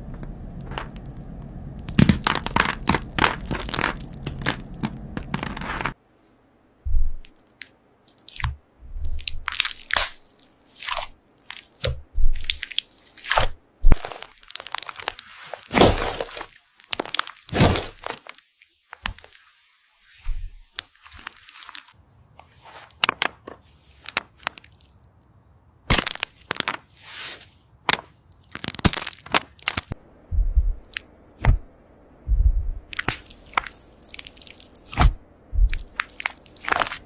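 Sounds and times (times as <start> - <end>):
dull low thump: 6.9 - 7.2, 30.3 - 32.9, 35.0 - 35.8
crunchy slime cracking: 35.7 - 37.0.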